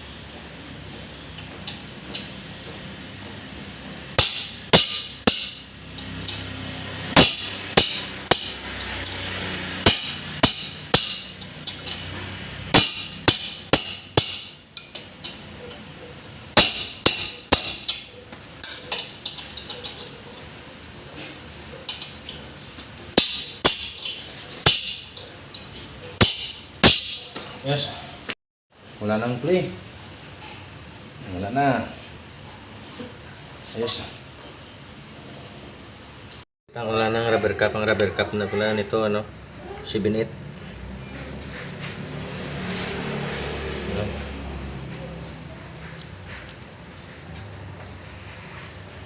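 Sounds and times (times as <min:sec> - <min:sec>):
hammer blows on metal: 0:04.2 - 0:06.4, 0:07.1 - 0:09.2, 0:09.8 - 0:11.9, 0:12.7 - 0:14.6.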